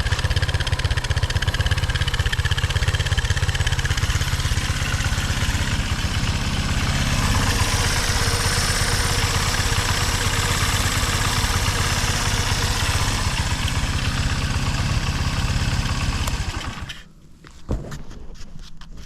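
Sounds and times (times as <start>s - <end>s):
small engine idling: 0.0s - 17.2s.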